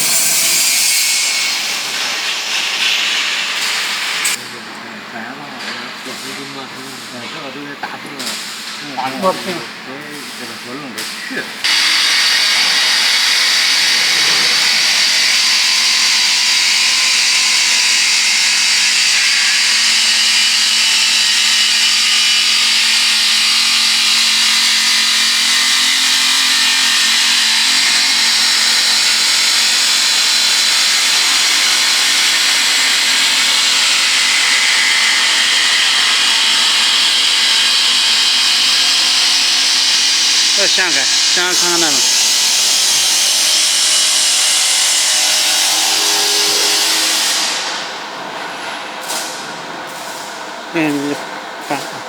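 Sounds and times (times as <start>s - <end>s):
woodworking machine high hiss: 0.0s - 48.1s, 49.0s - 52.0s.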